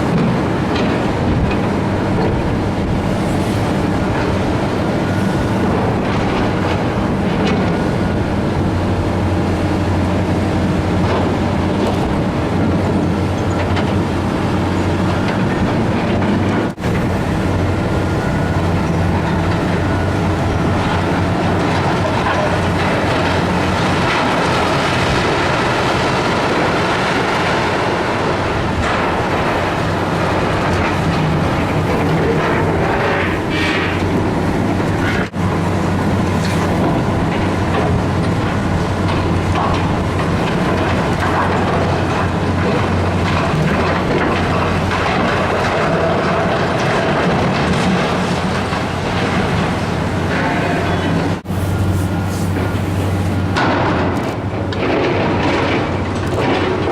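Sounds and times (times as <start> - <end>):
diesel demolition machinery running: 0.0 - 56.9
metal and debris clanking: 11.0 - 35.4, 36.1 - 56.9.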